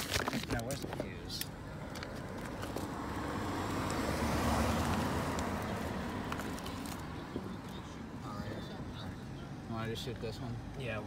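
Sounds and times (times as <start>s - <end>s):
car driving past: 2.2s - 7.6s.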